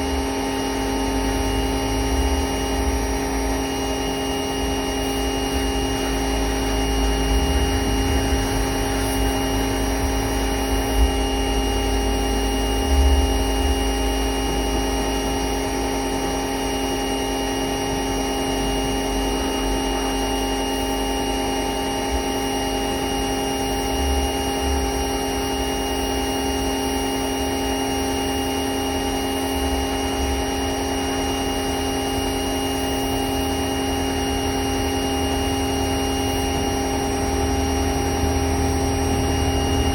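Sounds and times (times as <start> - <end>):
electric motor whining: 0.0 - 39.9
low rumble: 5.8 - 14.8.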